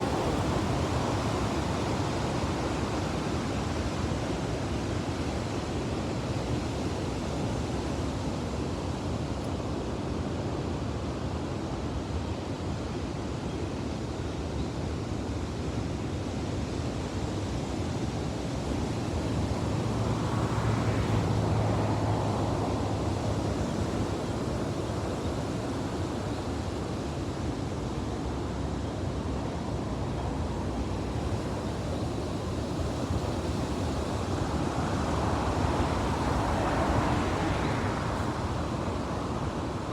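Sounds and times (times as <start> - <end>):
ocean surf breaking: 29.6 - 39.9.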